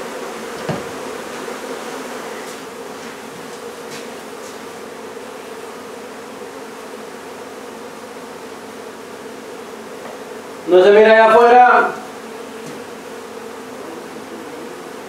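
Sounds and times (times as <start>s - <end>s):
honey bees humming: 0.0s - 15.0s.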